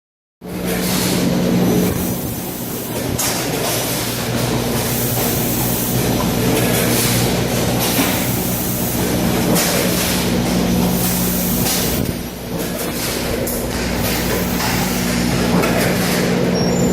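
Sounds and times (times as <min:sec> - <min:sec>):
packing machine mechanical hum: 0:00.4 - 0:16.9
machine hissing bursts: 0:13.2 - 0:16.9.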